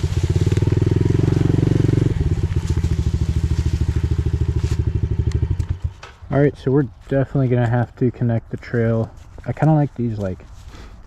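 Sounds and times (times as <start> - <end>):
motorbike engine running: 0.0 - 6.7.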